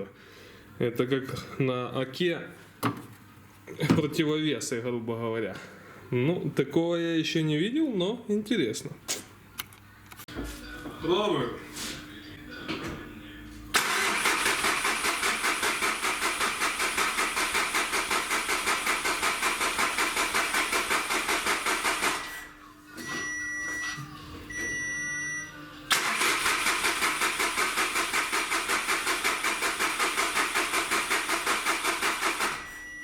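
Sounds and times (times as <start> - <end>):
engine starter cranking: 13.7 - 22.4, 25.9 - 32.7.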